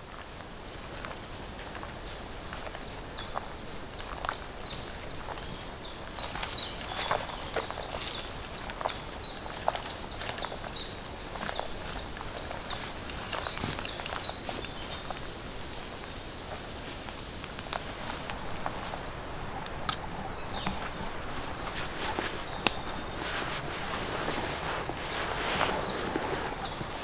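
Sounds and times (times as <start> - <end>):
forest background: 0.0 - 27.0
sharp ticks and snaps: 22.5 - 23.1.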